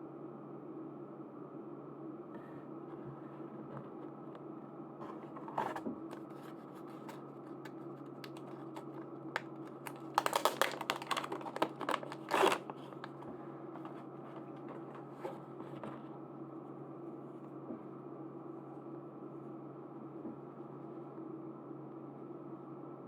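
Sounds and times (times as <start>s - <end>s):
plastic packaging crinkling: 5.3s - 15.4s.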